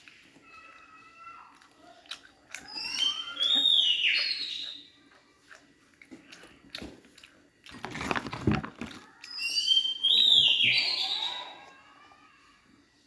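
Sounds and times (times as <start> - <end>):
chewing and crunching chips: 0.0 - 12.0.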